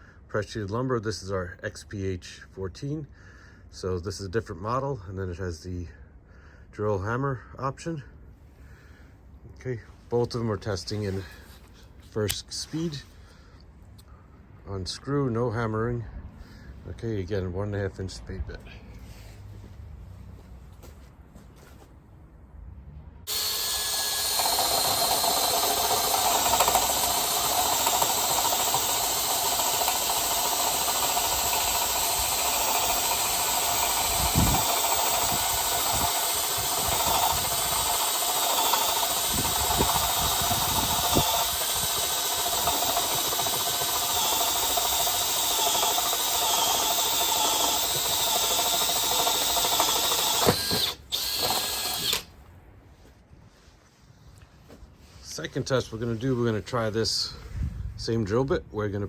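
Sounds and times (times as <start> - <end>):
low thumps of drill bit: 23.3 - 52.3
power drill running under load: 23.3 - 52.3.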